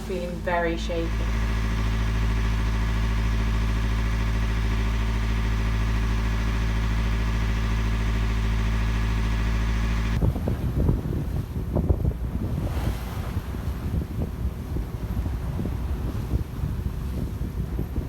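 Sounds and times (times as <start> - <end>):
boat diesel engine droning: 0.0 - 18.0
gusty wind: 10.2 - 18.0
waves: 10.2 - 18.0.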